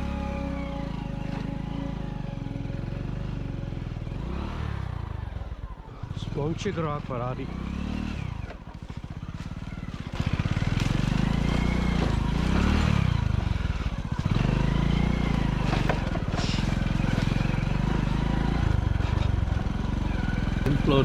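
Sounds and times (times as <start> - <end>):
motorcycle engine pulling: 0.0 - 21.0.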